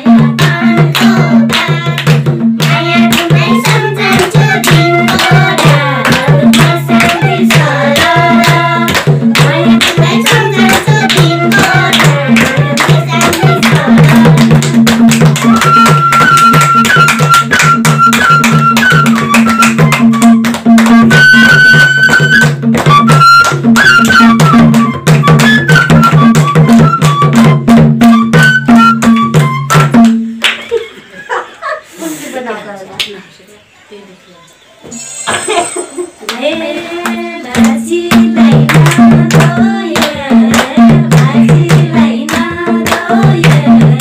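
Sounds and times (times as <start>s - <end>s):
hand drum in fast rhythm: 0.0s - 30.4s, 36.6s - 44.0s
high held melody: 0.0s - 30.4s
hand clapping: 0.3s - 30.7s, 37.0s - 44.0s.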